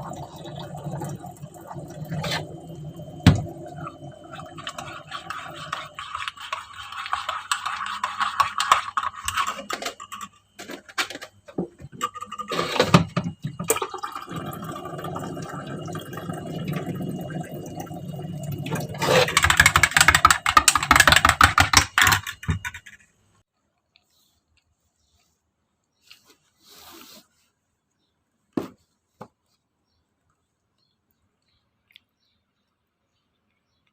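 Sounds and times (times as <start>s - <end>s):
water running: 0.0s - 10.2s, 11.7s - 21.4s.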